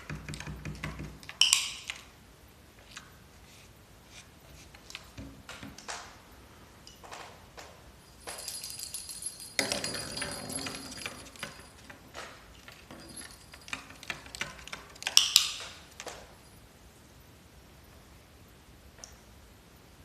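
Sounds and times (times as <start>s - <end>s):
small metal object jingling: 8.0s - 16.6s.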